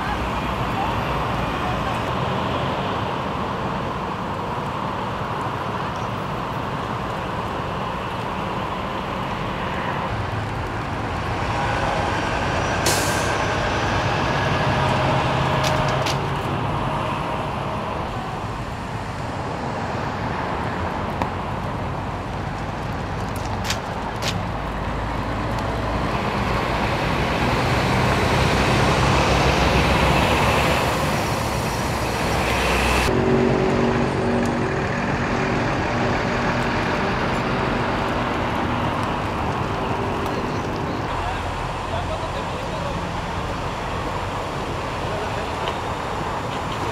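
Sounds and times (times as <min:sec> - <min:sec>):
engine hum: 0:00.0 - 0:46.9
heavy vehicle engines running: 0:00.0 - 0:46.9
road noise: 0:00.0 - 0:46.9
air hiss burst: 0:12.8 - 0:13.4.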